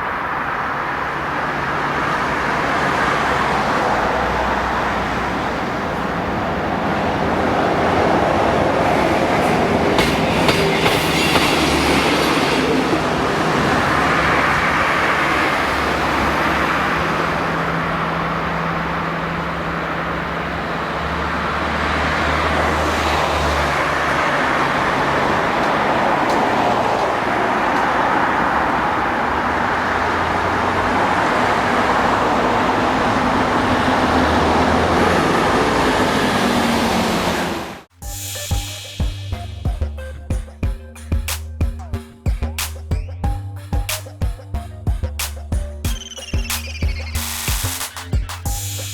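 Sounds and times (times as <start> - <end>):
train rumble: 0.0 - 48.9
wheels clattering over rail joints: 1.1 - 36.0.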